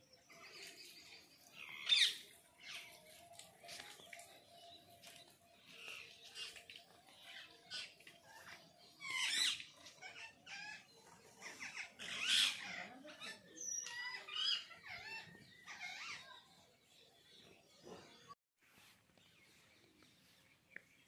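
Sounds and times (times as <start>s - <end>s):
birds calling and chirping: 0.0s - 21.0s.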